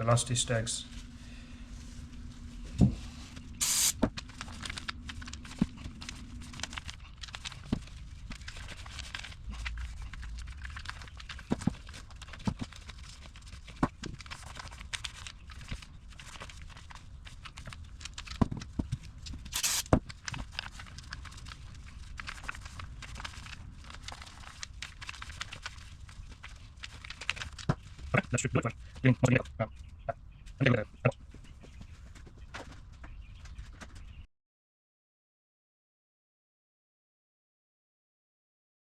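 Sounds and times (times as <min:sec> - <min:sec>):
short hissing bursts: 0:03.6 - 0:04.0, 0:19.6 - 0:19.9.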